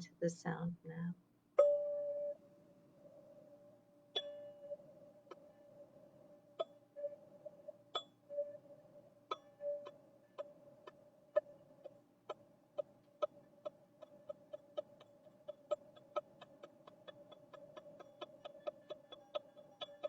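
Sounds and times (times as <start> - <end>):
struck tube ringing tone: 1.6 - 2.5, 3.4 - 11.8, 13.6 - 20.0.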